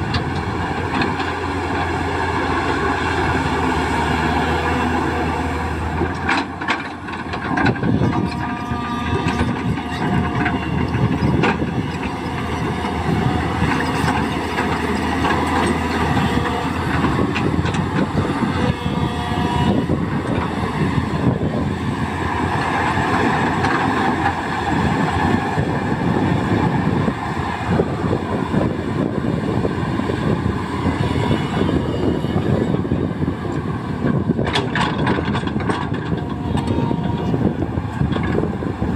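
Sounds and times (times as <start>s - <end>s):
excavator diesel engine under load: 0.0s - 38.9s
machine knocks and clanks: 6.0s - 21.4s, 34.0s - 37.3s.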